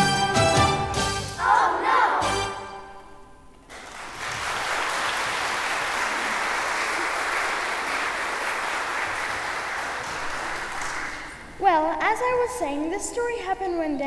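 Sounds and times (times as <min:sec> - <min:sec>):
audience applauding: 0:03.7 - 0:11.6.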